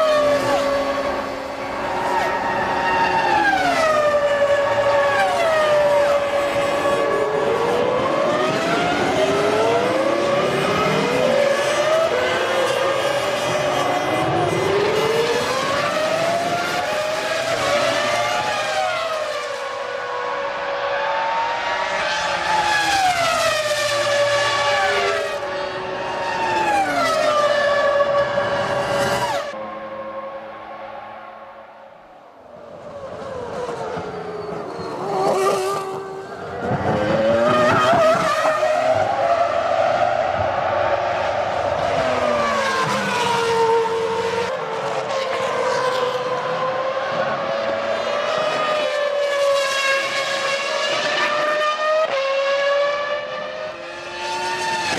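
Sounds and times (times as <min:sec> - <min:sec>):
racing car engines at high revs: 0:00.0 - 0:30.8, 0:32.8 - 0:54.9.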